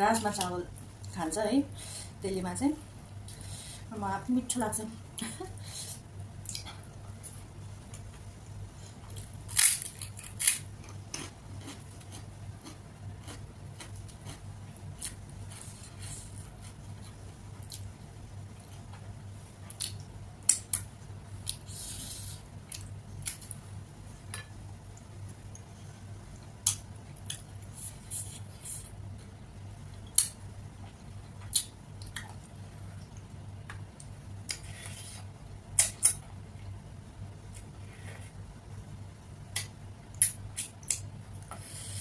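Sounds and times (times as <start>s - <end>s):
steady low hum: 0.0s - 42.0s
person chewing food: 8.9s - 17.8s.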